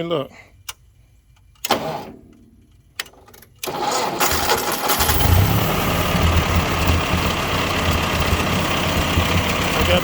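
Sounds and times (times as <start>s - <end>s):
tractor engine cranking and running: 3.0s - 10.0s.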